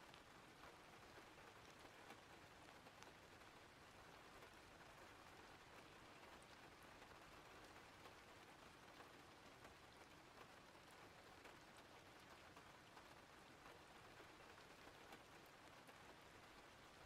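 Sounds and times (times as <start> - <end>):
faint steady rain: 0.0 - 17.0
light raindrop ticks: 0.0 - 17.0.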